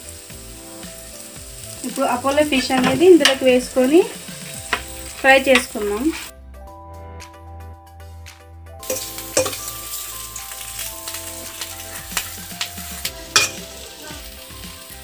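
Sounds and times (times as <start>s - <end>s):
fish sizzling in hot oil: 0.0s - 6.3s, 8.8s - 15.0s
spatula clinking against pan: 8.9s - 9.7s, 13.3s - 13.6s.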